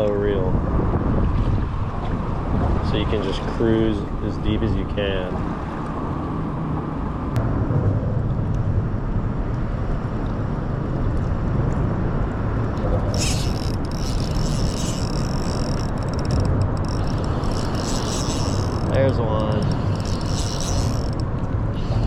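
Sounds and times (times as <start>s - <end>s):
low rumble: 7.1s - 22.0s
fishing reel whirring: 13.1s - 22.0s.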